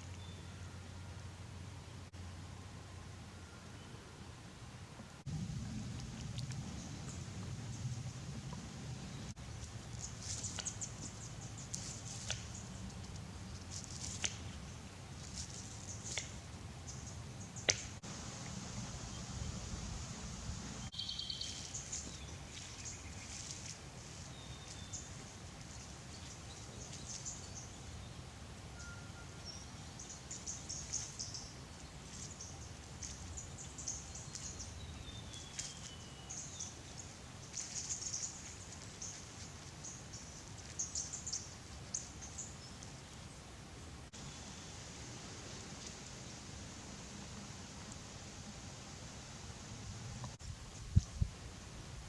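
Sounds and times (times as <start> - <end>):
faint steady background hiss: 0.0 - 52.0
thin whistled bird notes: 20.8 - 23.5, 28.7 - 39.2.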